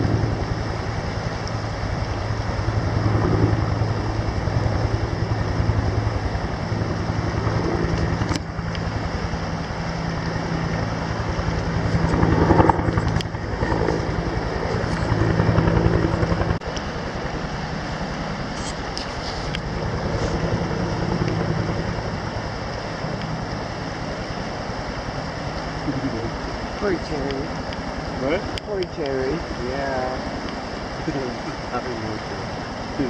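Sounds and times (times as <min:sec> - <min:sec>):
helicopter engine hum: 0:00.0 - 0:33.0
helicopter rotor beat: 0:00.0 - 0:33.0.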